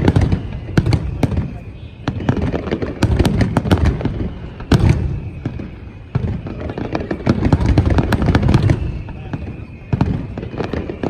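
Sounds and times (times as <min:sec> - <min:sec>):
fireworks cracks and bangs: 0:00.0 - 0:11.0.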